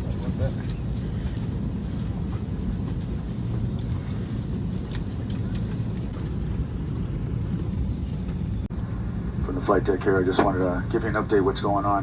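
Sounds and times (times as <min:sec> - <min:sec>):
murmured passenger voices: 0:00.0 - 0:06.0, 0:09.4 - 0:12.0
aircraft cabin rumble: 0:00.0 - 0:12.0.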